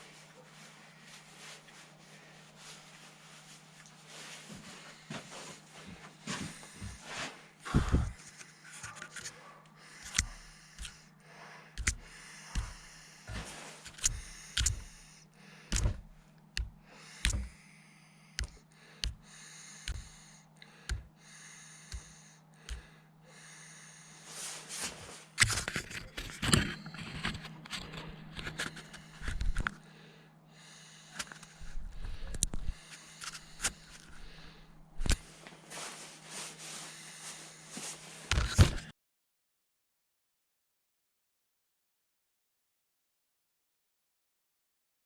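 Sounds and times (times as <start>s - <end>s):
steady low hum: 0.0s - 38.9s
hand tools knocking and scraping: 11.8s - 15.1s.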